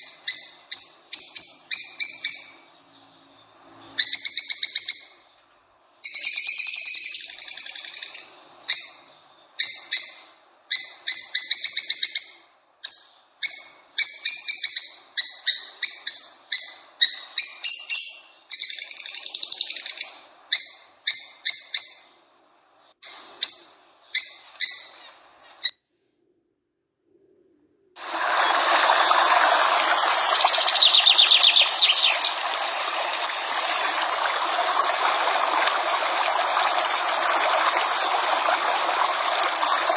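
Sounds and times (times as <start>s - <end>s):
small birds chirping: 6.0s - 22.2s, 28.3s - 39.9s
stream water running: 28.0s - 39.9s.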